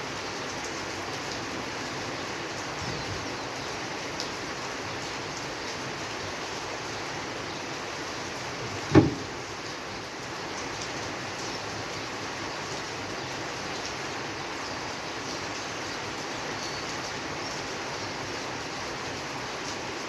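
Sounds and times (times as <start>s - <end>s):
steady rain falling: 0.0s - 20.0s
loud low thud: 8.6s - 9.4s.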